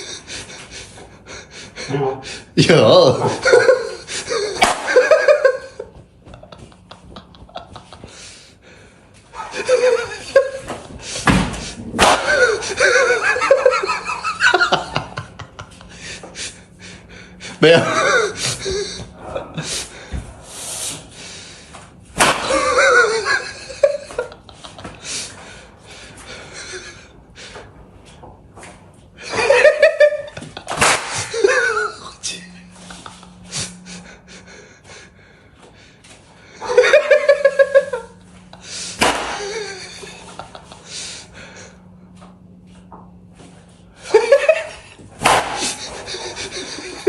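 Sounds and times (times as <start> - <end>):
person laughing: 2.7 - 8.5, 9.3 - 11.3, 12.0 - 20.1, 22.4 - 25.6, 26.3 - 27.6, 29.2 - 35.2, 36.5 - 41.7, 44.0 - 47.0
noisy burst of breath: 18.4 - 21.8, 38.6 - 39.3, 40.8 - 42.0.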